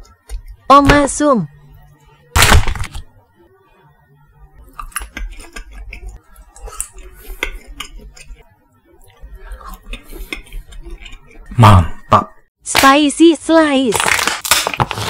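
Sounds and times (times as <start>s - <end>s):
chewing with wet clicks: 4.7s - 8.4s, 9.0s - 11.5s.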